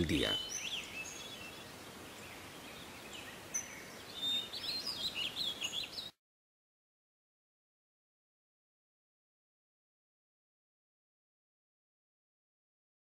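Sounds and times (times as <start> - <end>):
birds chirping: 0.0 - 6.2
faint outdoor hiss: 0.0 - 6.2.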